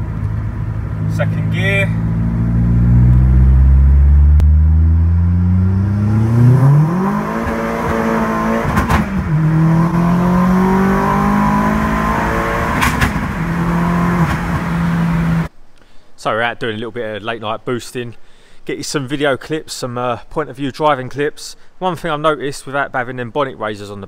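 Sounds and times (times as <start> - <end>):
car engine accelerating hard: 0.0 - 15.5.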